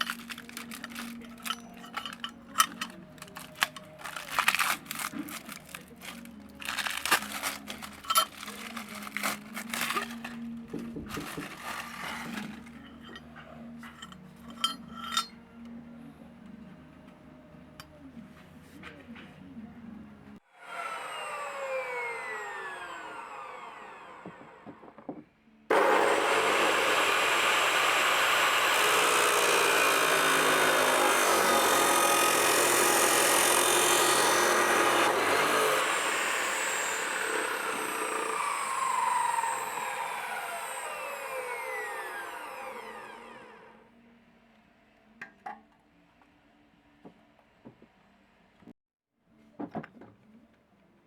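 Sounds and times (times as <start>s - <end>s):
power tool running: 0.0s - 13.2s, 20.5s - 43.8s.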